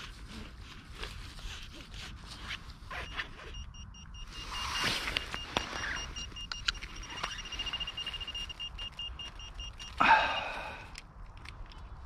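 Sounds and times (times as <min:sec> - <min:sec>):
digging in earth: 0:00.0 - 0:12.0
metal detector beeping: 0:02.9 - 0:10.9.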